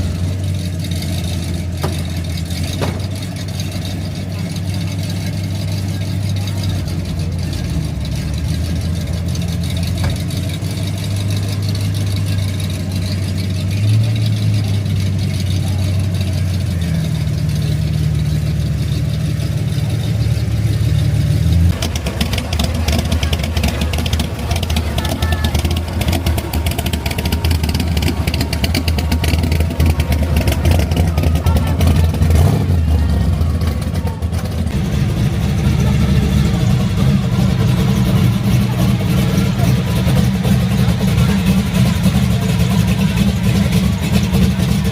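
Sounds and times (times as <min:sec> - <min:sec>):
car engine idling: 0:00.0 - 0:44.9.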